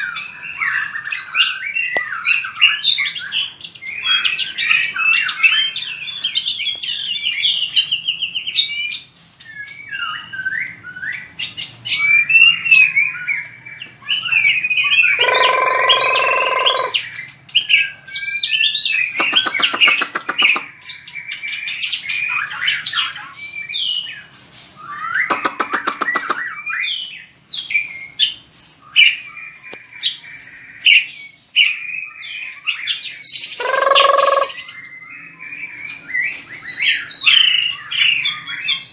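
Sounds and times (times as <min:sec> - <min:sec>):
bird singing whistled phrases: 0:18.2 - 0:24.2, 0:24.8 - 0:38.9.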